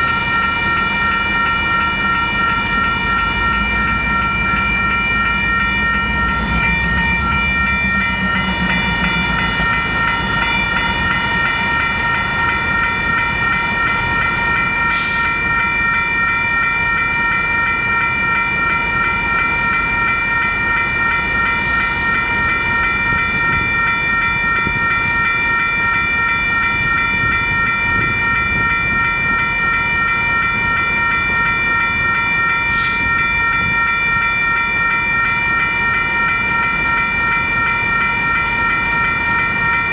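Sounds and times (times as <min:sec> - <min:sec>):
high-pitched ringing tones: 0:00.0 - 0:39.9
train rail rumble: 0:00.0 - 0:39.9.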